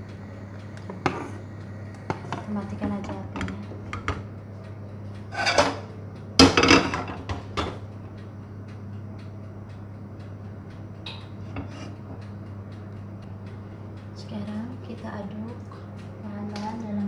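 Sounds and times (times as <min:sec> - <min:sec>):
steady low hum: 0:00.0 - 0:17.0
kitchen utensils and pan clattering: 0:05.3 - 0:05.8.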